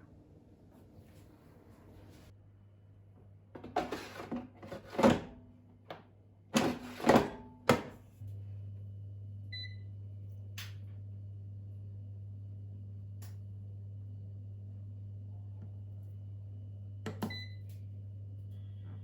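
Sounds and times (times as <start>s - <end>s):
appliance humming: 2.9s - 19.0s
short appliance beep: 9.5s - 9.9s, 17.2s - 17.7s.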